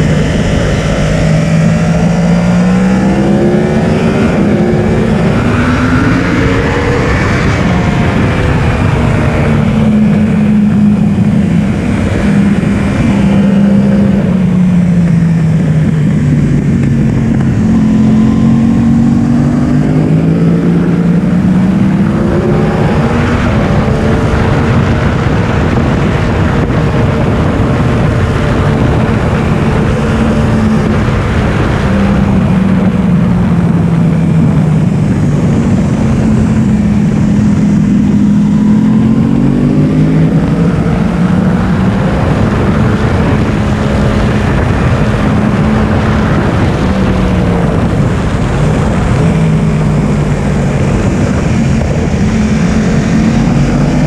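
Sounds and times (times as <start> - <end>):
motorcycle engine accelerating: 0.0 - 54.0
wind rush: 0.0 - 54.0.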